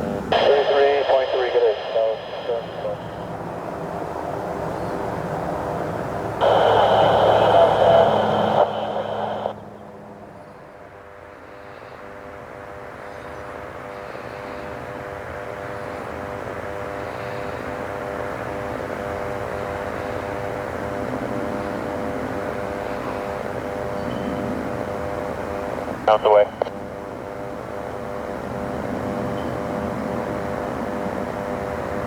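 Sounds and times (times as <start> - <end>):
aircraft engines droning: 0.0 - 32.0.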